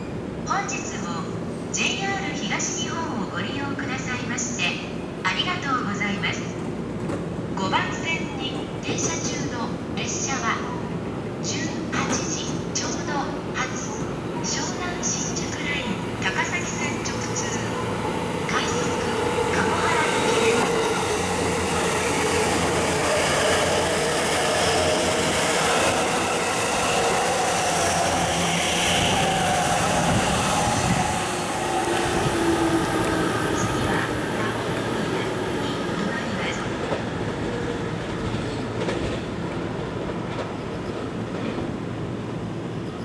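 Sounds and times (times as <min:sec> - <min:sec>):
train wheels running noise: 0:14.5 - 0:41.7
electric train motors whining: 0:15.3 - 0:36.4.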